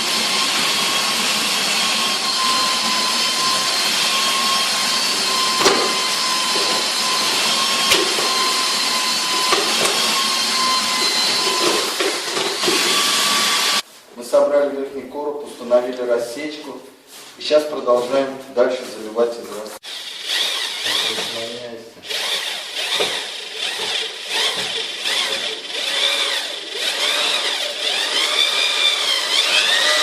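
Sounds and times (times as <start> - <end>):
electric motor whining: 0.0 - 13.8, 19.9 - 30.0
sharp knocks: 5.6 - 6.9, 7.9 - 8.4, 9.5 - 10.0.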